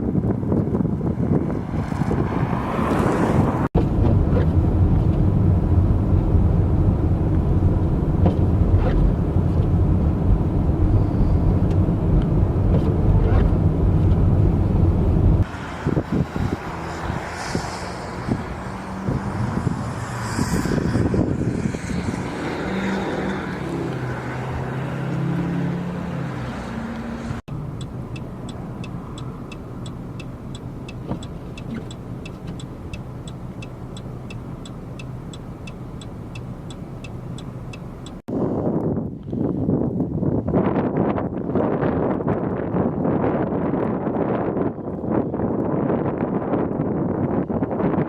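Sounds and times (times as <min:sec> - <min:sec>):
tyre and road noise: 0:00.0 - 0:48.0
vehicle engine hum: 0:00.0 - 0:48.0
light even ticking: 0:27.5 - 0:38.2.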